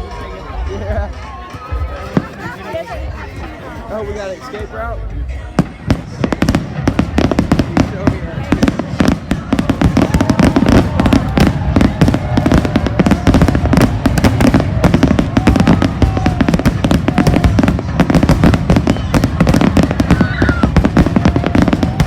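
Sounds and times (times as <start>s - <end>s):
fireworks bangs and crackles: 5.4s - 22.0s.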